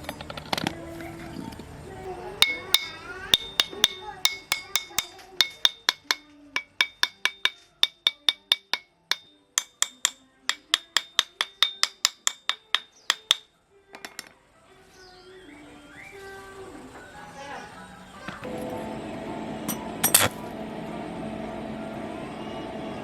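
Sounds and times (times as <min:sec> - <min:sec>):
hammer striking metal: 0:02.4 - 0:13.4, 0:19.7 - 0:20.4.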